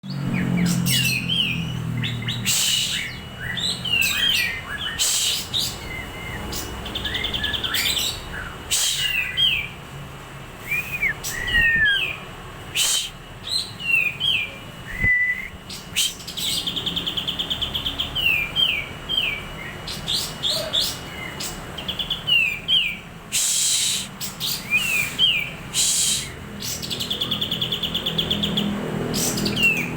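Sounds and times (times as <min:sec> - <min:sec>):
songbird singing varied song: 0:10.6 - 0:29.9.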